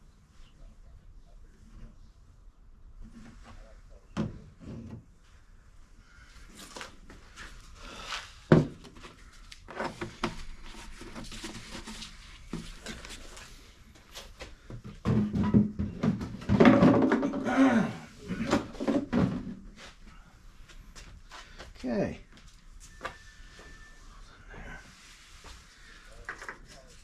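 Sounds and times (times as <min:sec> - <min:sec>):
objects knocking and clattering: 0:08.5 - 0:13.0, 0:14.7 - 0:19.7.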